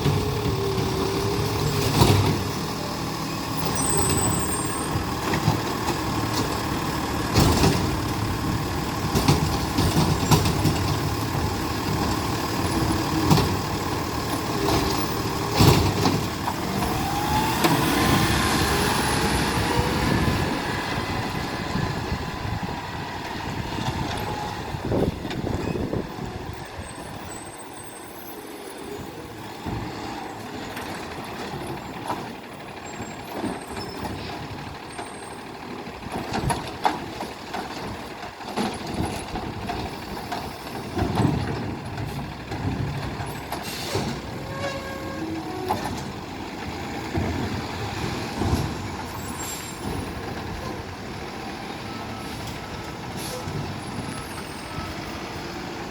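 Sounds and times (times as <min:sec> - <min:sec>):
diesel engine running: 0:00.0 - 0:55.9
air-brake hisses: 0:43.6 - 0:44.6.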